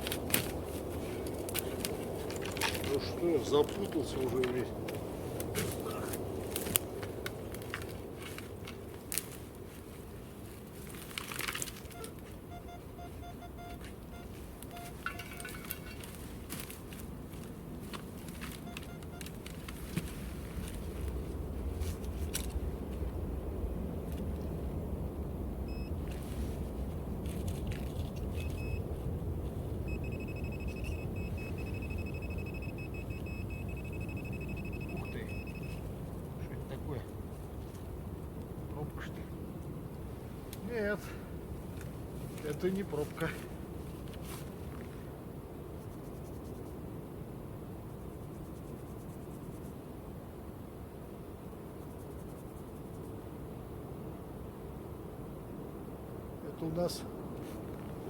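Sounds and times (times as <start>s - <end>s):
soil and leaves crunching: 0.0s - 12.4s, 13.1s - 22.6s, 41.7s - 45.1s
wind noise: 0.0s - 58.0s
short electronic beeps: 12.0s - 15.6s, 18.6s - 19.3s, 25.7s - 25.9s, 28.4s - 28.8s, 29.9s - 35.8s.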